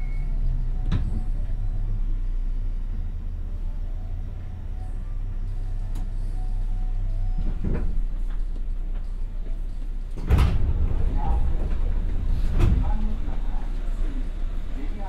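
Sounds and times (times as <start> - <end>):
train low hum and rumble: 0.0 - 15.0
air burst and doors sliding: 10.1 - 14.7.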